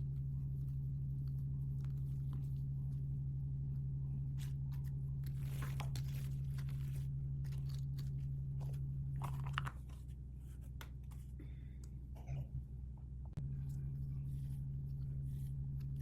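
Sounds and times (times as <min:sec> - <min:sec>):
low hum: 0:00.0 - 0:16.0
plastic packaging crinkling: 0:04.4 - 0:10.1.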